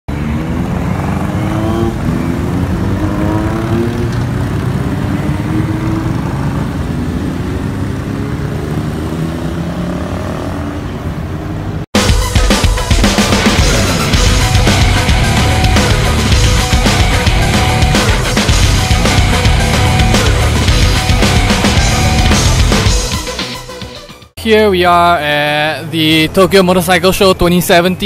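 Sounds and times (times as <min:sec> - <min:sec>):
vehicle engine accelerating: 0:00.1 - 0:11.9, 0:13.0 - 0:23.4
loud music: 0:12.0 - 0:24.4.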